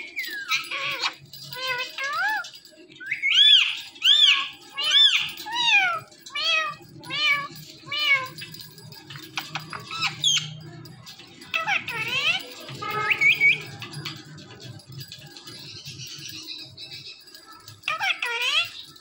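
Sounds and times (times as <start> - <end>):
parakeet squeaks: 0.0 - 14.7, 15.5 - 19.0
parakeet mimicking cat meow: 0.5 - 2.5, 4.0 - 8.5.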